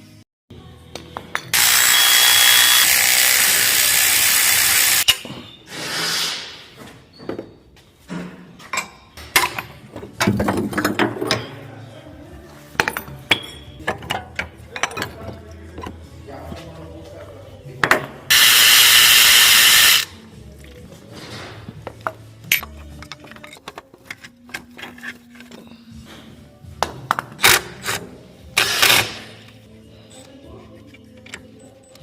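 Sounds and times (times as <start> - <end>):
pneumatic tool hissing: 1.6 - 5.1, 18.3 - 20.1.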